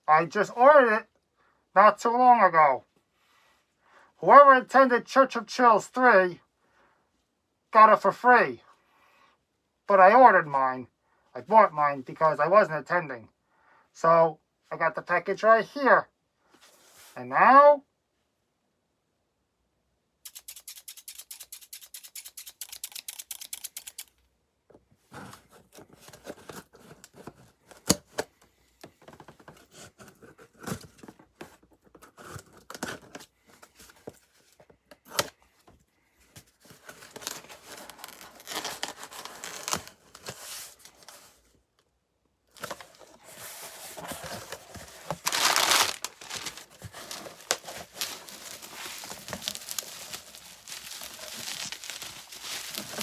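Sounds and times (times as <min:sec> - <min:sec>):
tape tearing: 0:20.3 - 0:24.1, 0:36.8 - 0:41.2, 0:42.6 - 0:53.0
packaging crinkling: 0:36.8 - 0:41.0, 0:42.6 - 0:53.0.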